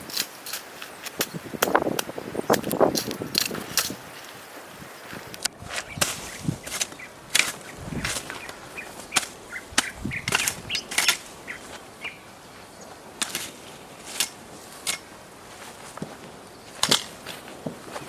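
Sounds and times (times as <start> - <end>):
sharp snaps and cracks: 0.0 - 4.4.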